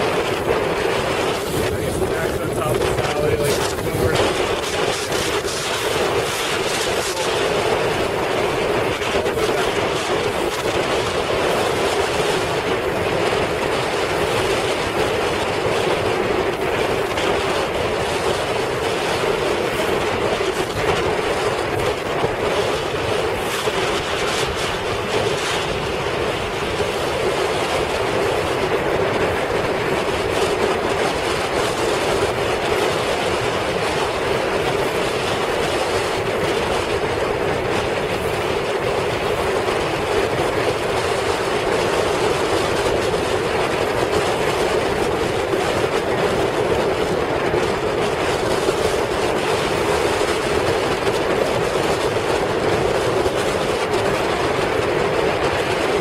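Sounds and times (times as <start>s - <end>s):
motorboat engine drone: 0.0s - 56.0s
wind on microphone: 0.0s - 56.0s.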